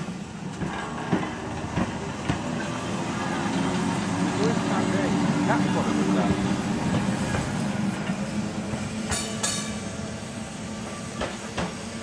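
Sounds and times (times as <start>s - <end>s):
electric tram humming: 0.0s - 12.0s
wheels clicking over rail joints: 0.4s - 5.0s.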